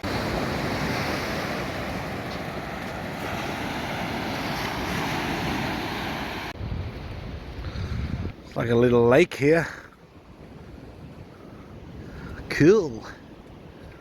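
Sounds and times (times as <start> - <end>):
surf rushing: 0.0 - 8.1
wind on microphone: 0.0 - 8.6, 10.1 - 12.6.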